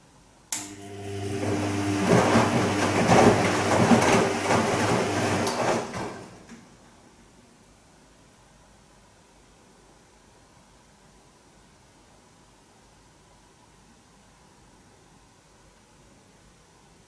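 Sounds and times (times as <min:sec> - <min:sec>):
washing machine motor hum: 0:00.6 - 0:06.7
water and laundry sloshing: 0:01.1 - 0:06.5.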